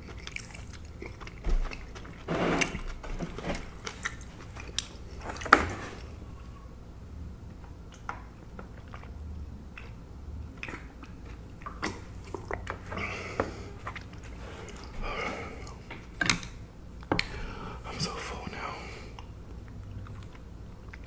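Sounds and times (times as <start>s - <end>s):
person chewing food: 0.0s - 6.8s, 7.4s - 21.0s
sharp mouth clicks: 10.6s - 12.7s.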